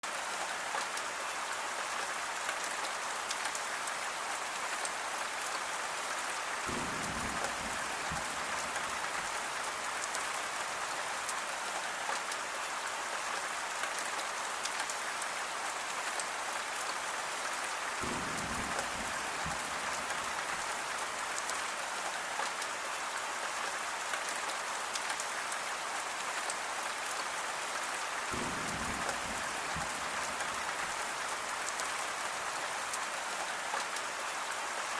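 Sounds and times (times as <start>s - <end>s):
rain pattering on a surface: 0.0s - 34.9s.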